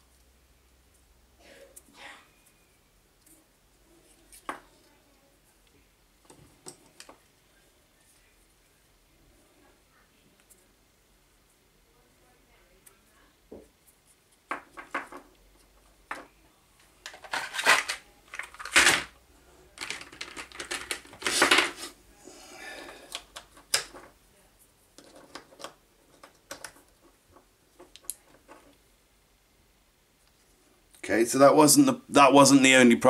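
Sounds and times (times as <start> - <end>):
tools and metal parts clattering: 17.1 - 19.1.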